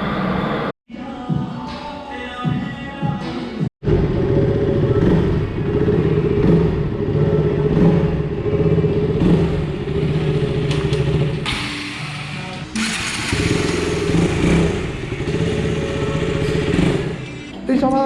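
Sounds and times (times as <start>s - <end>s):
motorcycle engine running: 3.8s - 17.5s.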